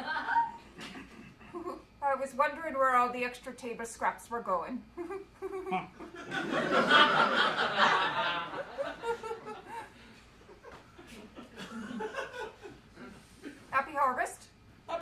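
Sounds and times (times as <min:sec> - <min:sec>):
group of people laughing: 0:00.0 - 0:01.7, 0:05.4 - 0:13.1.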